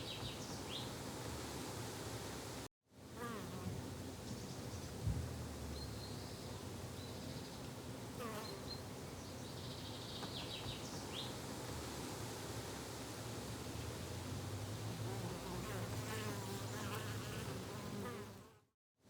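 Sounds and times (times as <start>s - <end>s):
steady background hiss: 0.0s - 18.0s
low thump: 5.0s - 5.4s.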